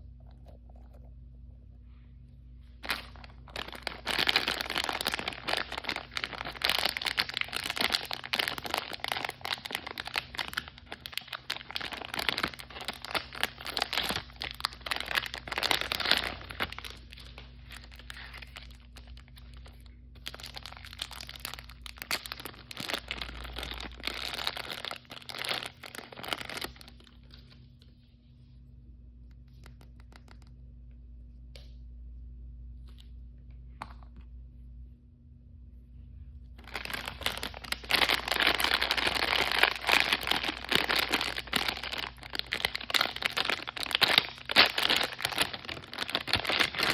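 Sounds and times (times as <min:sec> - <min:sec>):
plastic packaging crinkling and tearing: 0:02.8 - 0:27.6, 0:36.6 - 0:46.9.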